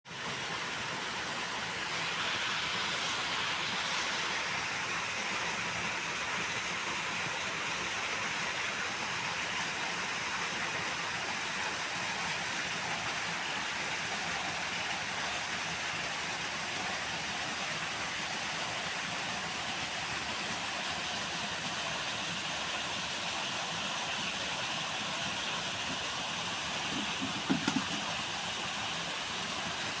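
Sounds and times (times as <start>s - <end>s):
flowing water rushing: 0.1s - 30.0s
low knocks: 27.0s - 28.0s.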